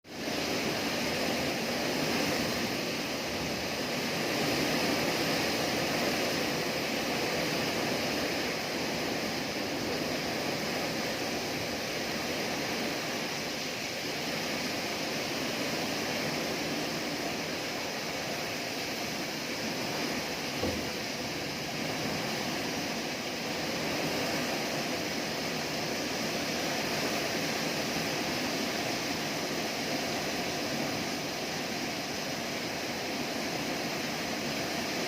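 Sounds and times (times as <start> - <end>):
wind: 0.0 - 35.0
heavy rain rushing: 0.1 - 34.8.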